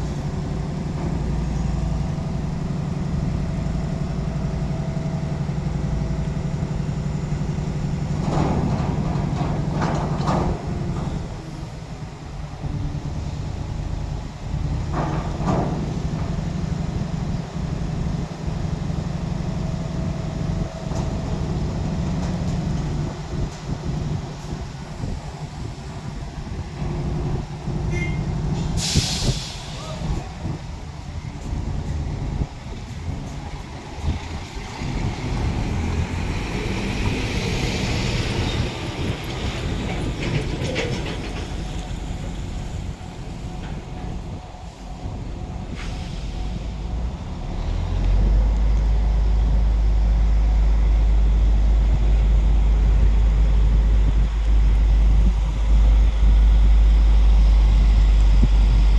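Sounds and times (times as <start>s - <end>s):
heavy diesel engine running: 0.0s - 58.9s
hiss: 28.6s - 30.6s.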